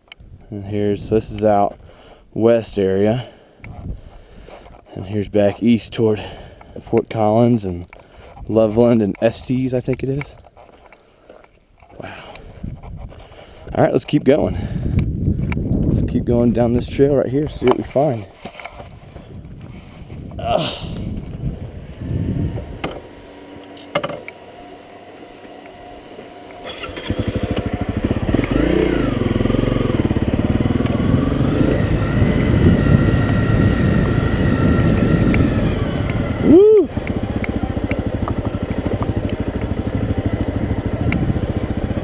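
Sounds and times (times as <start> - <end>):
motorcycle engine running: 19.3 - 23.8, 24.4 - 42.0.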